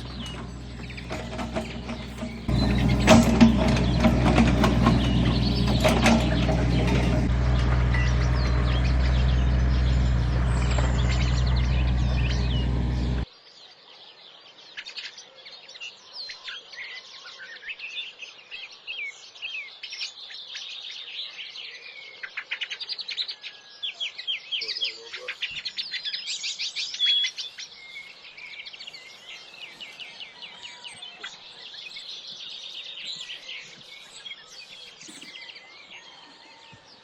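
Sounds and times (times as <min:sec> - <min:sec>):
birds chirping and whistling: 0:00.0 - 0:13.2, 0:24.6 - 0:37.0
machine engine running: 0:00.0 - 0:13.2.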